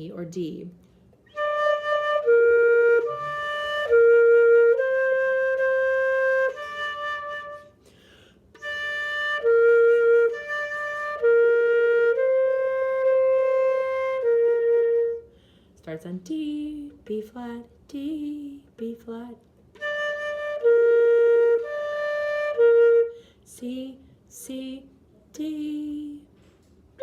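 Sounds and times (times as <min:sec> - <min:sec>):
flute playing slow melody: 0:01.2 - 0:07.9, 0:08.6 - 0:15.3, 0:19.8 - 0:23.2.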